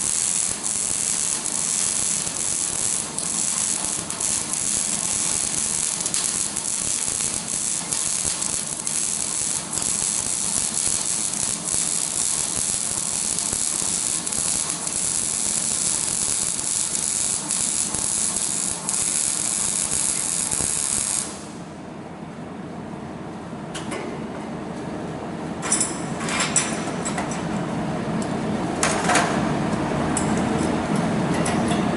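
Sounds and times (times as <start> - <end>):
arc welding crackling hiss: 0.0 - 21.6.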